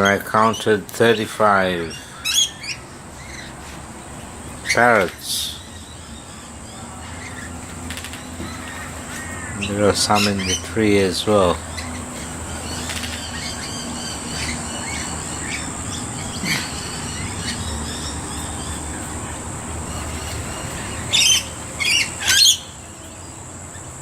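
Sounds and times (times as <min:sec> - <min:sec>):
lorikeets chattering: 0:00.0 - 0:24.0
harsh bird screeches: 0:04.6 - 0:10.7, 0:11.7 - 0:22.8.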